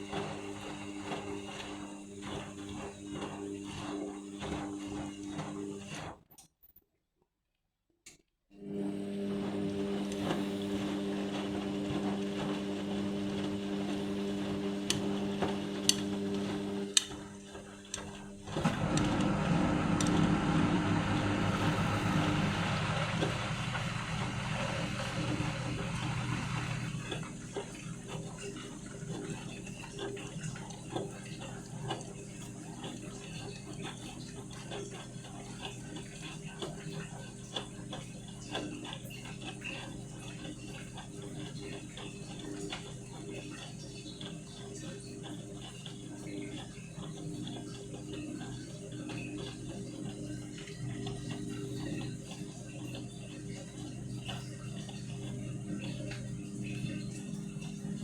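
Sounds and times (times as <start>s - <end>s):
washing machine churning: 0.0s - 6.2s, 8.6s - 58.0s
washing machine motor hum: 0.0s - 6.2s, 8.6s - 58.0s
water rushing and sloshing: 18.6s - 30.6s.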